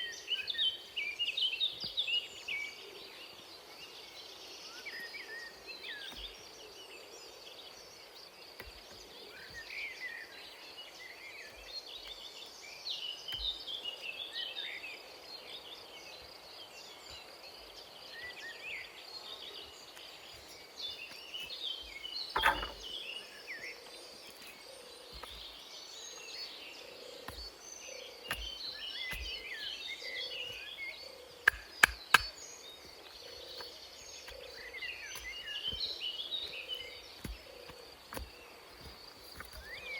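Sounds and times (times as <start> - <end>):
birds chirping and twittering: 0.0 - 39.9
sharp knock: 22.4 - 22.8.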